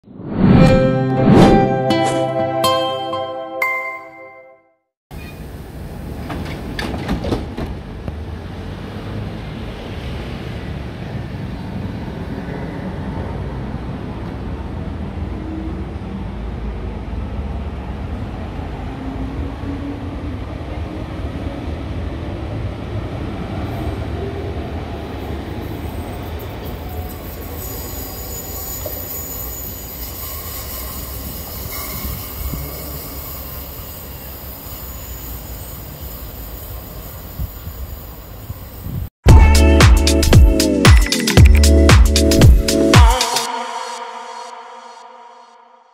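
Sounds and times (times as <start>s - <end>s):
train clicks and knocks: 6.2s - 7.9s
electric train rumble: 16.4s - 39.8s
rising train whine: 42.8s - 45.9s.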